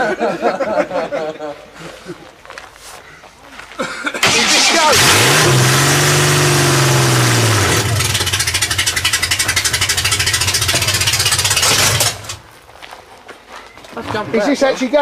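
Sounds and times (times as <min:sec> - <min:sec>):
engine revving and running: 0:04.2 - 0:12.4.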